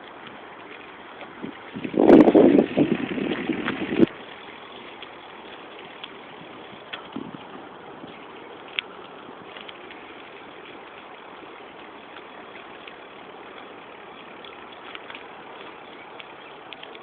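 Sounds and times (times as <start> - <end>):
wind and road noise on microphone: 0.0 - 17.0
faint small clicks: 8.6 - 10.0, 14.4 - 17.0.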